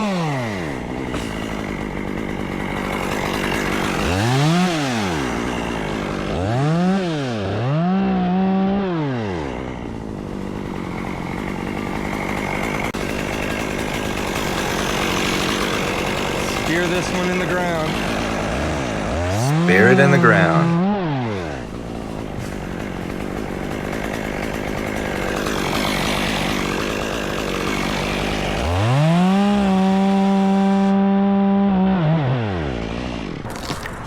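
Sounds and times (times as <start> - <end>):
chainsaw idling and revving: 0.0 - 34.0.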